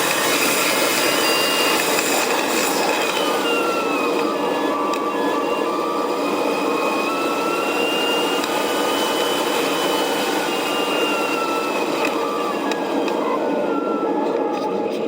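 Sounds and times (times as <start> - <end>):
thin whistle: 1.0 - 2.3.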